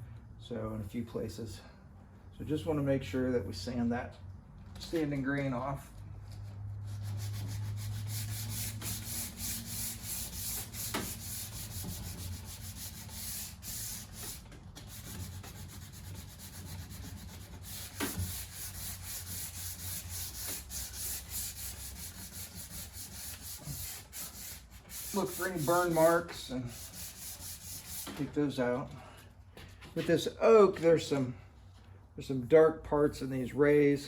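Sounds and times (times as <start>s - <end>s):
sandpaper rubbing on wood: 6.9s - 28.2s.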